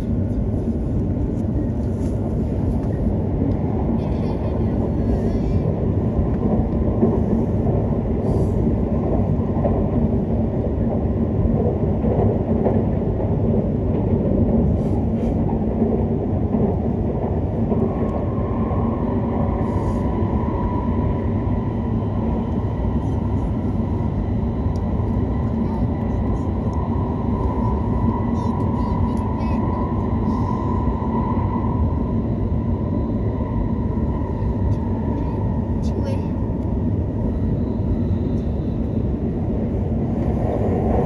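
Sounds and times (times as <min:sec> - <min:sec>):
train wheels rumbling inside cabin: 0:00.0 - 0:41.0.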